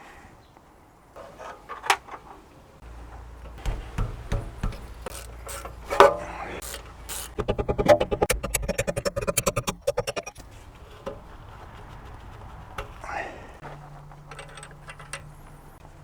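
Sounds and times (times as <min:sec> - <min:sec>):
rubbing and scraping: 0:01.2 - 0:16.0
hand tools knocking and clicking: 0:02.8 - 0:08.3, 0:14.0 - 0:15.8
fast even ticking: 0:06.6 - 0:10.4.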